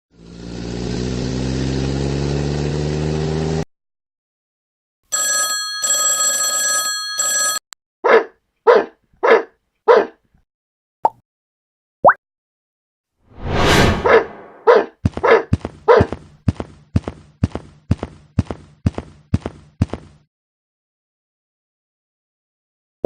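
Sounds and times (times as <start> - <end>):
engine hum rising in pitch: 0.1 - 3.7
short barks: 8.0 - 10.2, 14.0 - 16.2.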